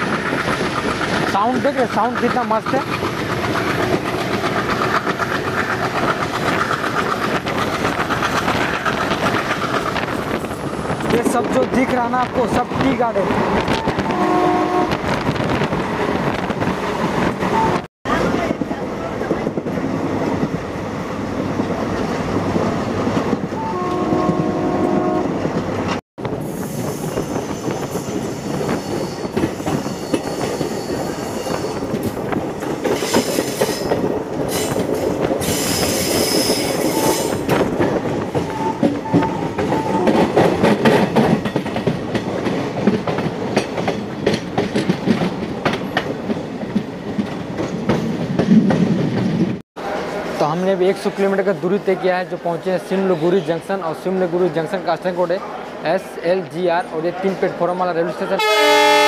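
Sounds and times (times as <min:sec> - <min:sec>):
wheels clacking over rail joints: 0:00.0 - 0:14.2, 0:27.3 - 0:49.6
train rumble: 0:00.0 - 0:52.9
train horn: 0:13.7 - 0:15.1, 0:23.6 - 0:25.4, 0:58.4 - 0:59.0
metallic wheel squeal: 0:26.6 - 0:31.9.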